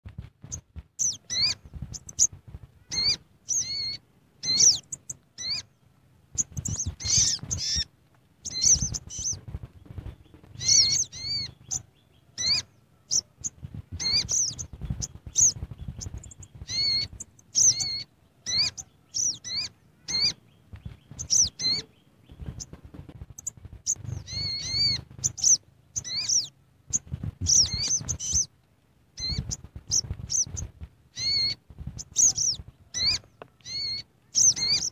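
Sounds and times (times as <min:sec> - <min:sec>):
bird chirping: 0:00.2 - 0:34.9.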